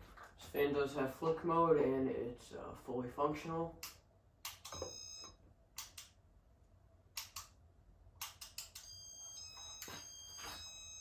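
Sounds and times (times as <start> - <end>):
steady electronic beep tone: 4.7 - 5.4.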